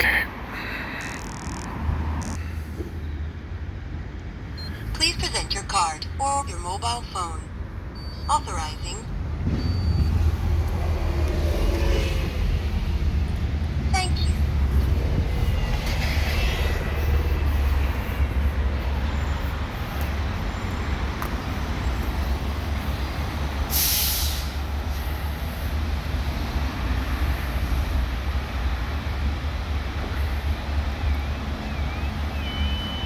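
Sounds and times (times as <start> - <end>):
loud hiss: 23.7 - 24.6.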